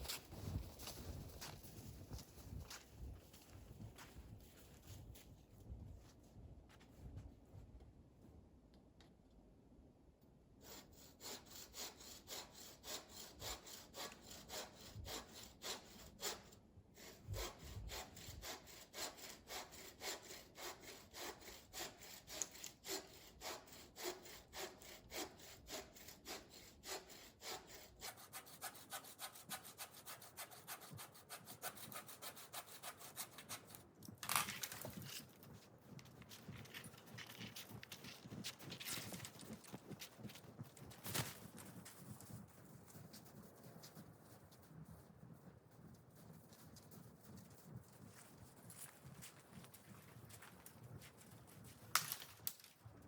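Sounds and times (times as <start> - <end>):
hand saw cutting wood: 10.6 - 35.2.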